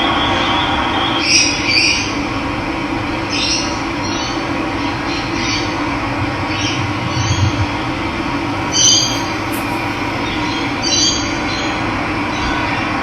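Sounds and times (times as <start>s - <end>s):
bird short high calls: 8.6s - 11.0s.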